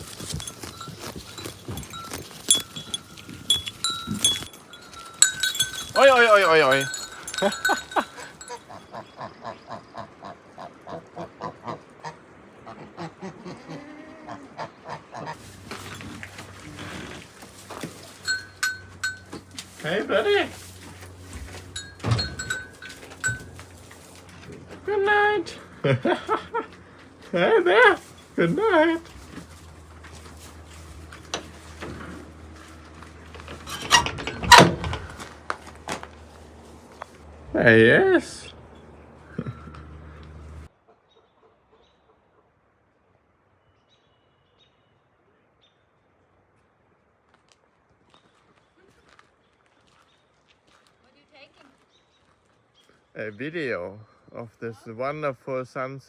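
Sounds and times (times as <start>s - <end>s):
goats chewing grass: 0.0s - 8.8s, 15.4s - 24.9s, 25.6s - 37.2s.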